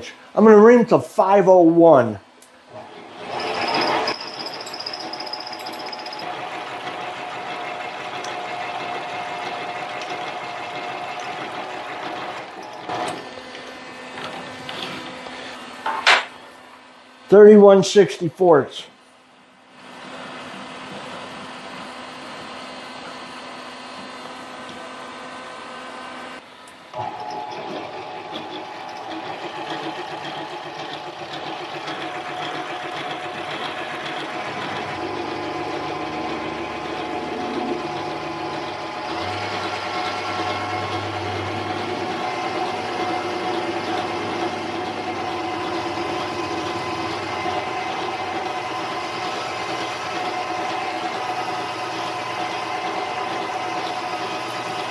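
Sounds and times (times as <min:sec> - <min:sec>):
lathe motor whining: 0:03.0 - 0:13.2, 0:27.0 - 0:42.2, 0:48.8 - 0:54.9.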